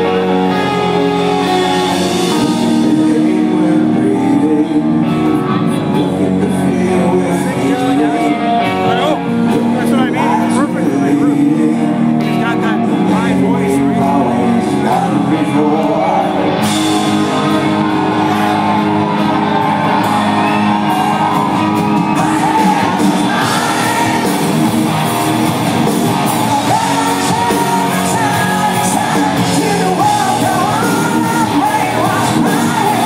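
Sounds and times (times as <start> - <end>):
person singing: 0.0 - 18.8, 19.6 - 24.8, 26.3 - 33.0
live rock band playing: 0.0 - 33.0
audience yelling: 15.5 - 33.0.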